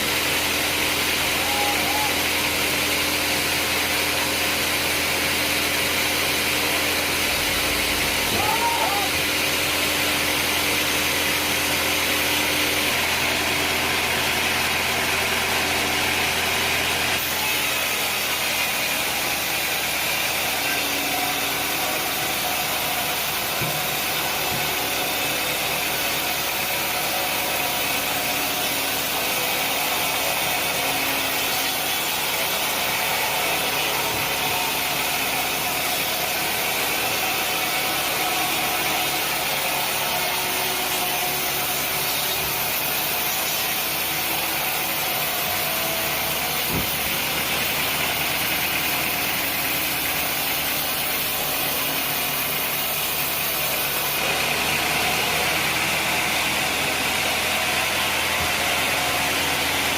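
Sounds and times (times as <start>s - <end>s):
engine drone: 0.0s - 59.9s
saw hissing: 16.6s - 54.2s.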